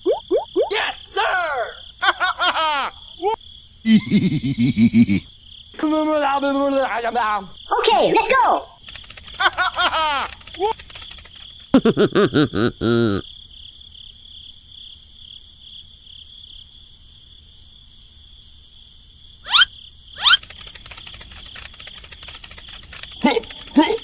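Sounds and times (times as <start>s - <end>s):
crickets chirring: 0.0s - 24.0s
squeaky voice-like chattering: 19.5s - 20.5s.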